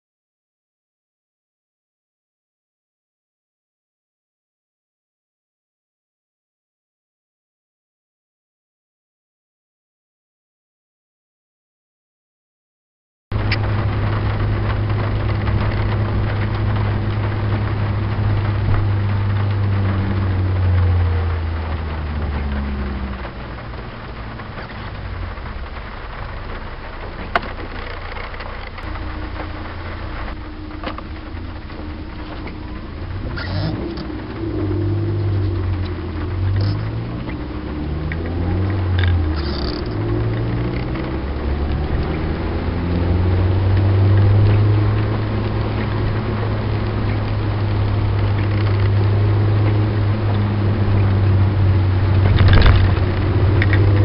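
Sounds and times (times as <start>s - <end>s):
car engine revving in cabin: 13.4s - 54.0s.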